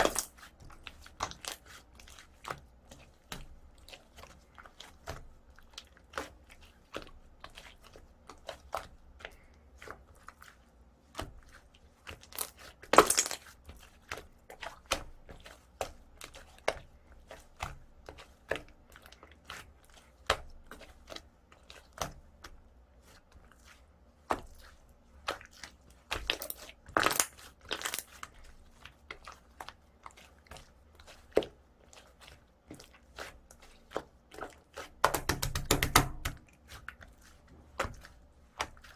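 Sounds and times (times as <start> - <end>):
slime clicking and crackling: 0.0 - 2.4, 12.1 - 13.6, 25.2 - 29.2.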